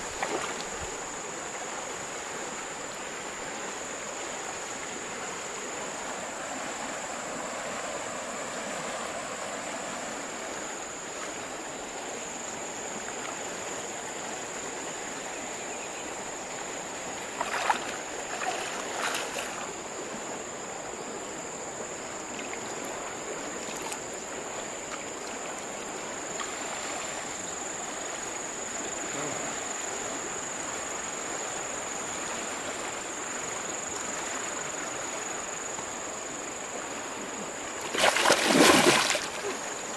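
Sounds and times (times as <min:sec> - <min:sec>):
river water flowing: 0:00.0 - 0:39.9
sharp knocks or splashes: 0:00.1 - 0:00.8, 0:17.3 - 0:19.6, 0:37.8 - 0:39.6.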